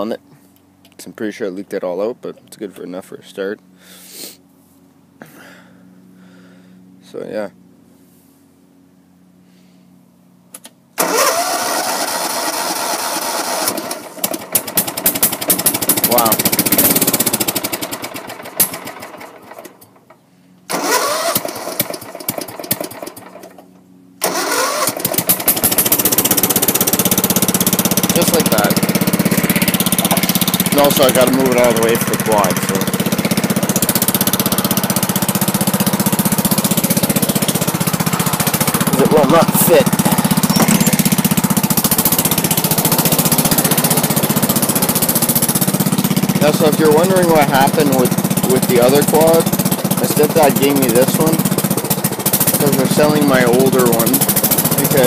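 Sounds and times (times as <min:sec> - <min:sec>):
lawn tractor engine starting: 0:10.5 - 0:55.0.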